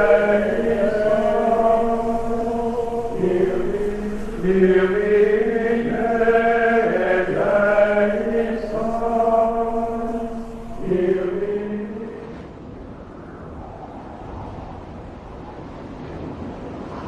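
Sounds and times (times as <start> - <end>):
voices chanting sustained notes: 0.0 - 12.5.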